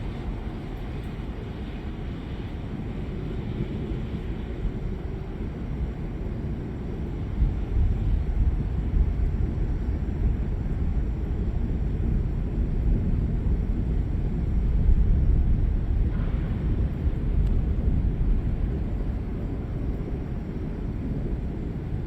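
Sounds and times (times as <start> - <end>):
thunder rumbling: 13.2 - 20.3.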